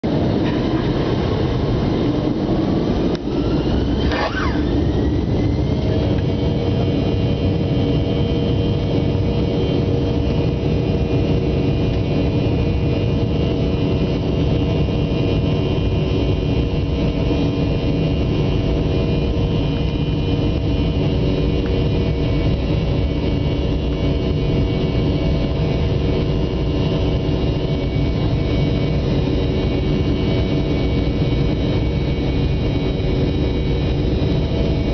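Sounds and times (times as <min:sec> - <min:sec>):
aircraft engines at takeoff power: 0:00.0 - 0:34.9.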